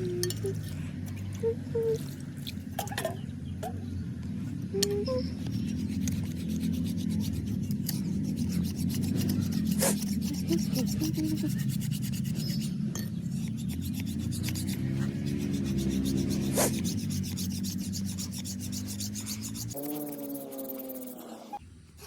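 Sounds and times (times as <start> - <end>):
blade being sharpened: 5.4 - 21.6.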